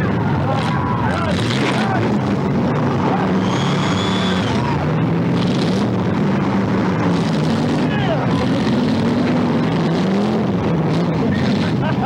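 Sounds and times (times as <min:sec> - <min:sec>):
car engines revving: 0:00.0 - 0:12.0
high steady squeal: 0:03.2 - 0:04.9.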